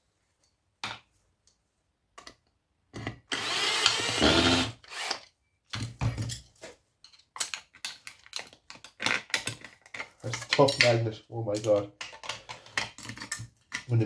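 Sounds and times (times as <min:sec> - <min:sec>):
cordless drill running: 0:03.3 - 0:05.2.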